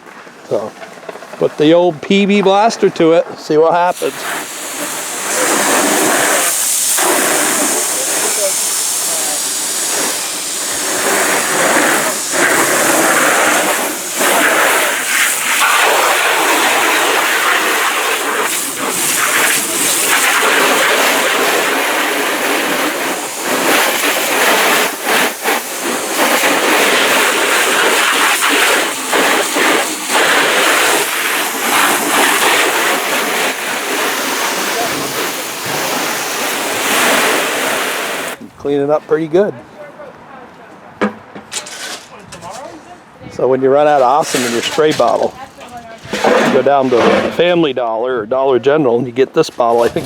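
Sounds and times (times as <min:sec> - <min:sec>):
loud hissing spray: 0:03.8 - 0:38.4, 0:43.8 - 0:45.2, 0:49.6 - 0:50.0.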